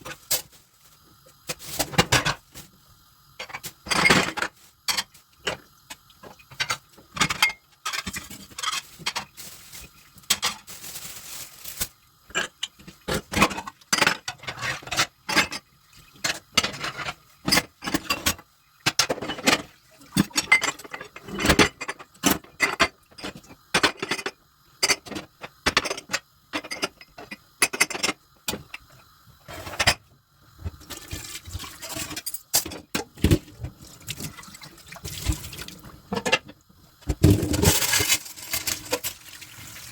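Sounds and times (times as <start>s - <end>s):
tap water running: 1.0s - 10.7s, 11.7s - 23.8s, 30.5s - 39.9s
dishes clinking in a sink: 1.5s - 2.4s, 3.4s - 9.4s, 12.3s - 28.8s, 36.1s - 37.8s.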